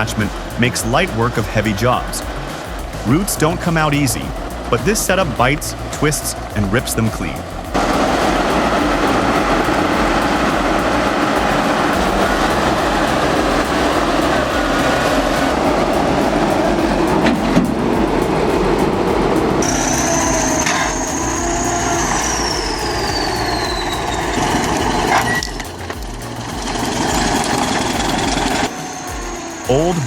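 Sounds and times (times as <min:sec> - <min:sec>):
sharp knocks: 0:00.0 - 0:30.0
tracked machine engine and clatter: 0:00.0 - 0:30.0
high squeal falling in pitch: 0:07.2 - 0:30.0.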